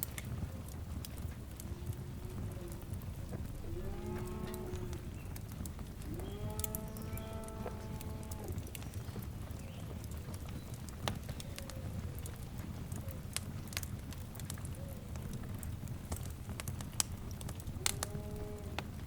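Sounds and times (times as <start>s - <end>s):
wood fire crackling and popping: 0.0s - 19.0s
low rumble: 1.3s - 9.6s.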